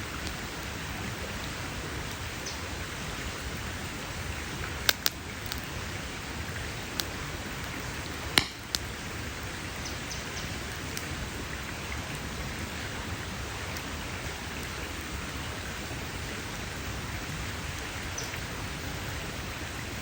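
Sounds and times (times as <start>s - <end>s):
campfire crackling and hissing: 0.0s - 20.0s
sharp pops from fire: 4.8s - 5.7s, 8.3s - 8.9s.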